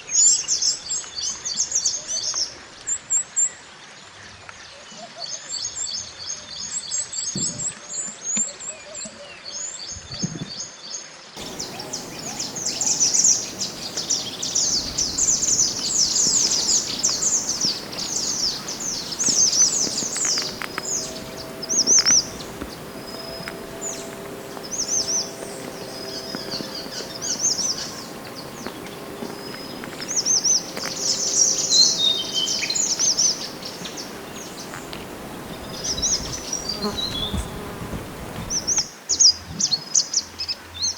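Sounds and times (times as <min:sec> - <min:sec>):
faint steady hum: 0:11.4 - 0:38.8
songbird chirping: 0:11.4 - 0:38.9.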